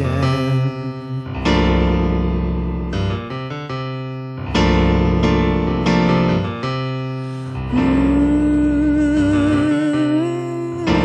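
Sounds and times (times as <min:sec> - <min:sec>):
deep bass: 0:00.0 - 0:11.0
electric piano chords: 0:00.0 - 0:11.0
sustained vocal or lead note: 0:07.6 - 0:11.0.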